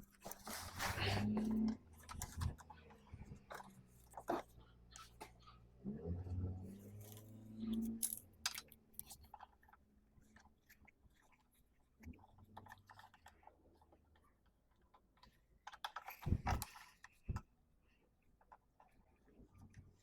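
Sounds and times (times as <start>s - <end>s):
tools and parts clicking: 6.9s - 9.8s.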